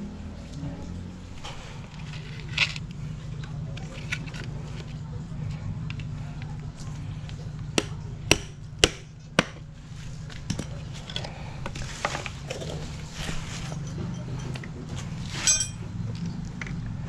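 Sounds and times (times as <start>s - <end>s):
steady low hum: 0.0s - 17.0s
metal tools knocking and clinking: 10.3s - 11.3s, 15.4s - 15.8s
ringing metallic clink: 15.4s - 15.8s.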